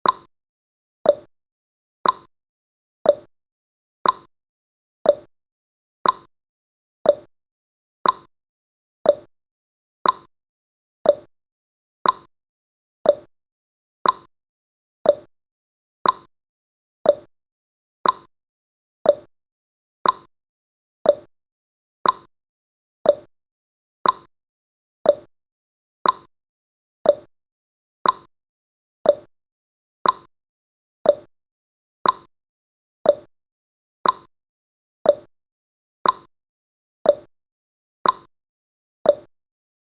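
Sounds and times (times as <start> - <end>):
timer ticking: 0.0 - 0.3, 1.1 - 1.3, 2.0 - 2.3, 3.1 - 3.3, 4.0 - 4.3, 5.1 - 5.3, 6.0 - 6.3, 7.0 - 7.3, 8.0 - 8.3, 9.0 - 9.3, 10.0 - 10.3, 11.0 - 11.3, 12.0 - 12.3, 13.0 - 13.3, 14.0 - 14.3, 15.0 - 15.3, 16.0 - 16.3, 17.0 - 17.3, 18.0 - 18.3, 19.0 - 19.3, 20.0 - 20.3, 21.0 - 21.3, 22.0 - 22.3, 23.0 - 23.3, 24.0 - 24.3, 25.0 - 25.3, 26.0 - 26.3, 27.0 - 27.3, 28.0 - 28.3, 29.0 - 29.3, 30.0 - 30.3, 31.0 - 31.3, 32.0 - 32.3, 33.0 - 33.3, 34.0 - 34.3, 35.1 - 35.3, 36.0 - 36.3, 37.1 - 37.3, 38.0 - 38.3, 39.1 - 39.3.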